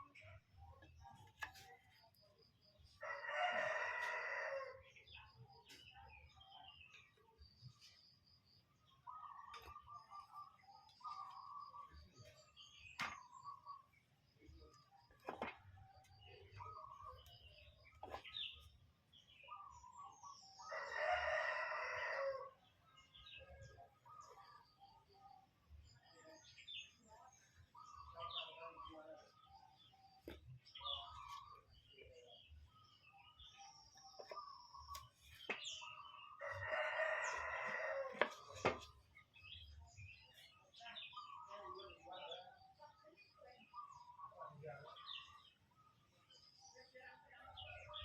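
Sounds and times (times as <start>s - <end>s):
small birds chirping: 0.0s - 48.0s
rooster crowing: 3.1s - 4.8s, 20.7s - 22.5s, 36.4s - 38.2s.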